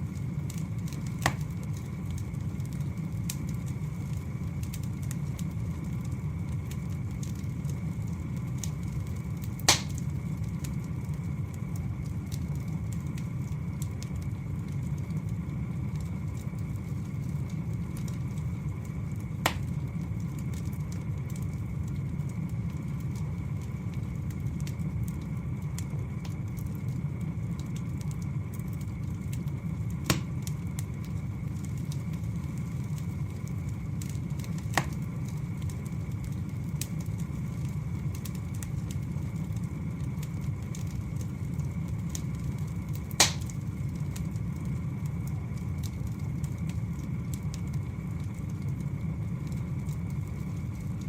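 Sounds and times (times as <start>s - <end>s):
burning logs popping: 0.0s - 51.0s
faint fire crackling: 0.0s - 51.0s
wood fire rumbling: 0.0s - 51.0s.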